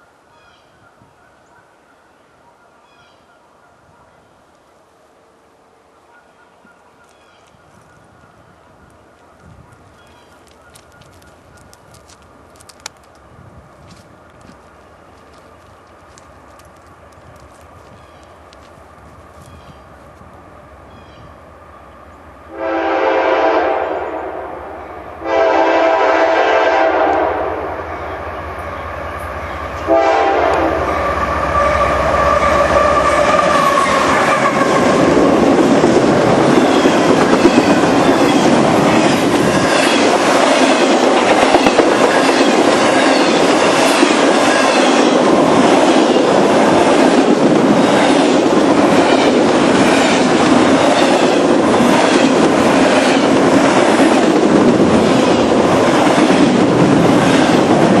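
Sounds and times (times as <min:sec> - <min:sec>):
wheels clicking over rail joints: 0:08.8 - 0:19.7
train horn: 0:22.5 - 0:35.2
freight cars rumbling: 0:30.8 - 0:58.0.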